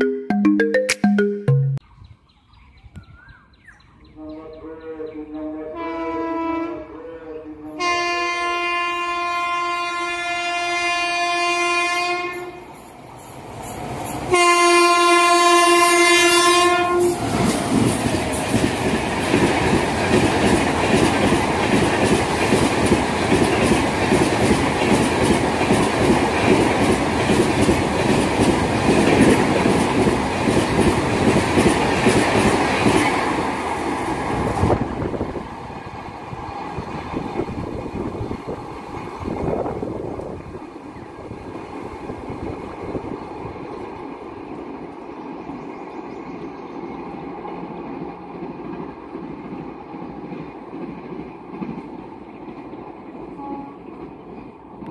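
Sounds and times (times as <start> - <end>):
locomotive horn blasts: 4.2 - 7.0, 7.8 - 12.6, 14.3 - 17.2, 53.4 - 53.9.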